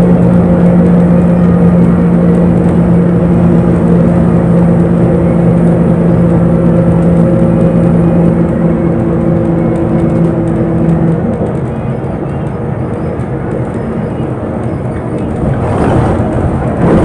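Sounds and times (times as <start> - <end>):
bus engine droning: 0.0 - 17.0
road noise rumble: 0.0 - 17.0.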